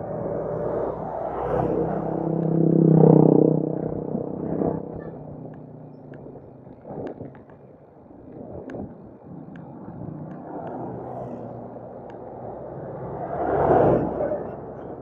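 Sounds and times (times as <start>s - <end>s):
wind on microphone: 0.0s - 11.6s.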